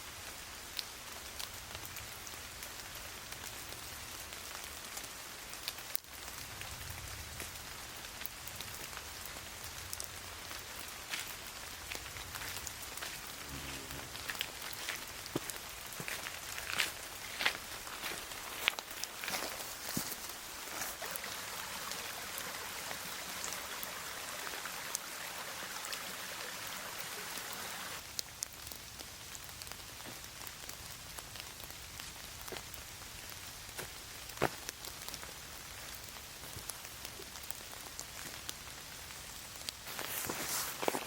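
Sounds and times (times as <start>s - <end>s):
rain on leaves: 0.0s - 41.0s.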